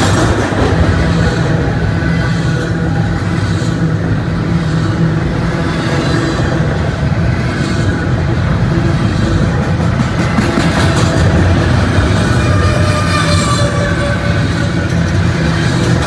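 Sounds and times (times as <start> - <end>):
steel wheels rumbling on rail: 0.0 - 16.0
rapid clicking of wheels: 4.6 - 16.0.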